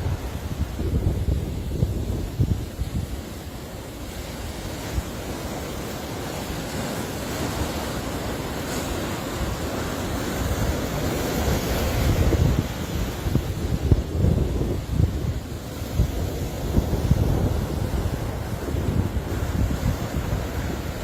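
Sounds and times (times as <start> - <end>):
sea waves washing in: 0.0 - 21.0
wind buffeting microphone: 0.0 - 21.0.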